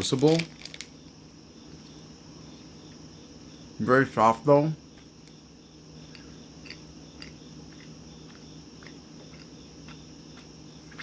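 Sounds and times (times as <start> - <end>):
faint chewing: 6.1 - 11.0.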